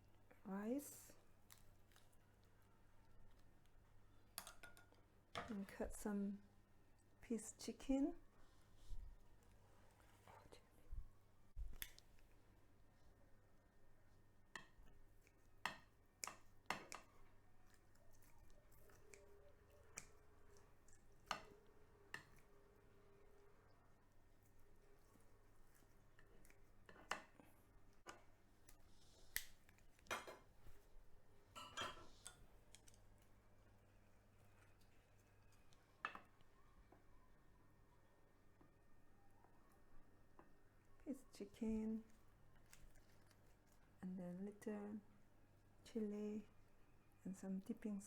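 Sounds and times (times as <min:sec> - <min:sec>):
utensils clinking against plate: 0:31.6 - 0:32.4.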